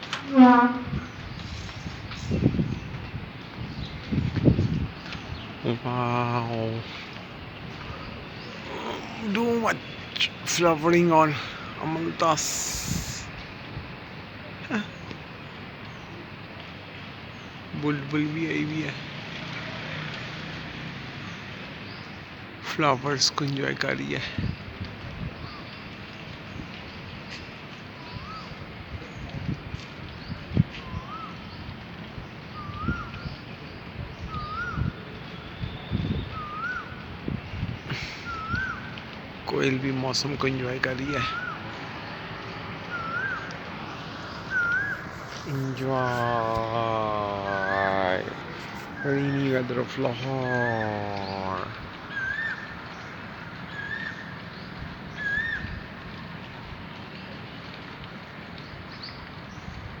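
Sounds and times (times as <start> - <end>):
rain hiss: 0.0 - 60.0
koel calling: 0.2 - 1.1, 44.5 - 52.6
rising whistled bird call: 32.6 - 33.4, 34.3 - 37.0, 38.2 - 38.9, 41.1 - 41.6, 42.9 - 53.1, 53.7 - 54.3, 55.1 - 55.7.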